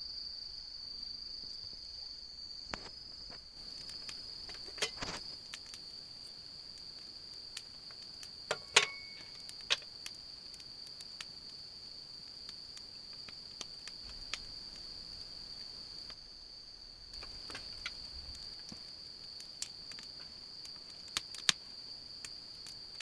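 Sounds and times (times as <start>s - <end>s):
insects trilling: 0.0s - 23.0s
sharp clicks and knocks: 8.5s - 9.9s.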